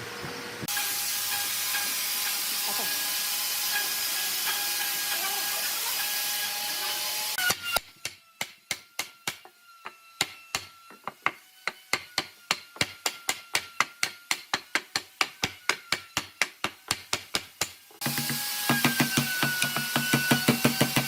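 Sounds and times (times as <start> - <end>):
hammer striking wood: 7.4 - 21.0.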